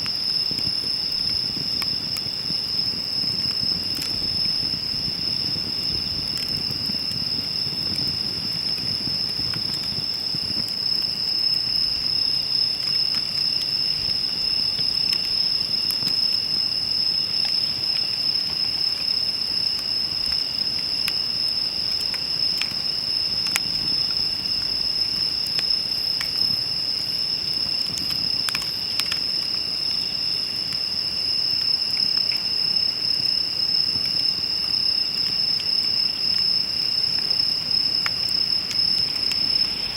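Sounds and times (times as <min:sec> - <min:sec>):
campfire popping and crackling: 0:00.0 - 0:39.9
crickets chirping: 0:00.0 - 0:39.9.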